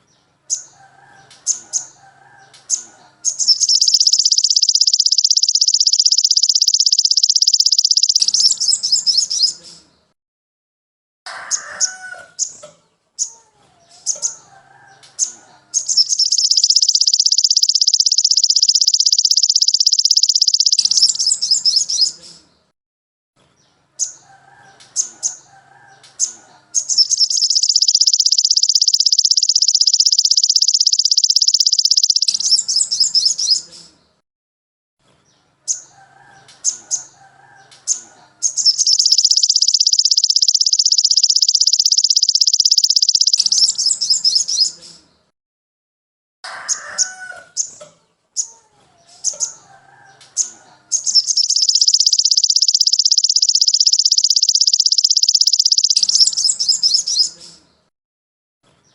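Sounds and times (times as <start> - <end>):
songbird chips and warbles: 0.5 - 10.0, 14.0 - 22.4, 24.0 - 34.0, 35.7 - 45.0, 49.2 - 57.8
fast high-pitched bird trill: 2.7 - 9.6, 14.0 - 22.2, 26.2 - 33.7, 37.9 - 44.8, 50.4 - 57.4.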